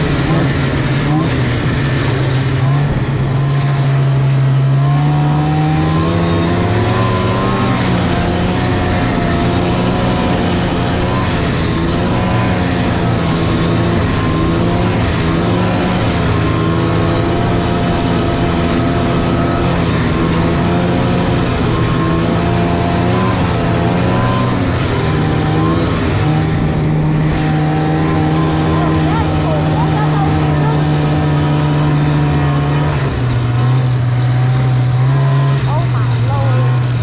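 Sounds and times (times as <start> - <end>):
snowmobile engine running: 0.0 - 37.0.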